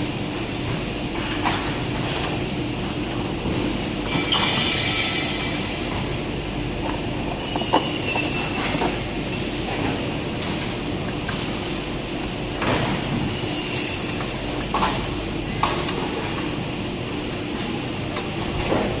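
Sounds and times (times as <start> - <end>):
high squeal of metal: 13.3 - 14.5.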